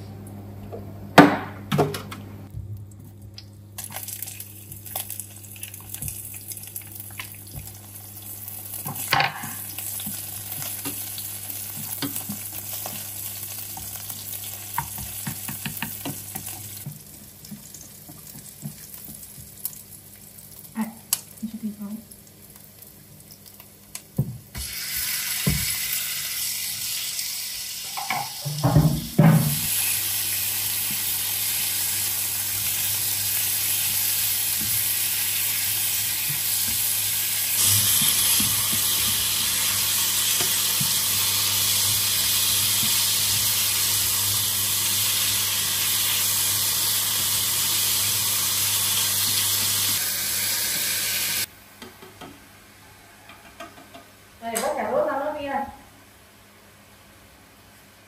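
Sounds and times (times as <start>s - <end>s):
meat sizzling in a pan: 3.8s - 19.9s, 24.6s - 28.6s, 29.4s - 51.5s.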